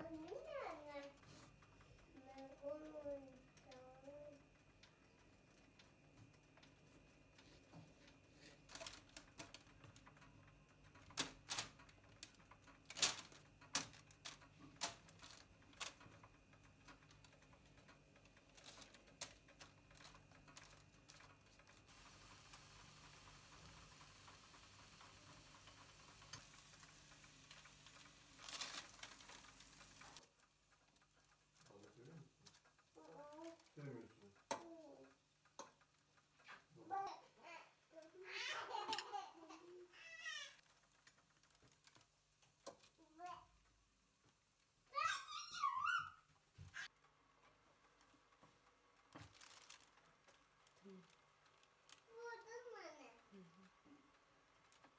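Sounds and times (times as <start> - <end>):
steady hiss: 18.6 - 37.3.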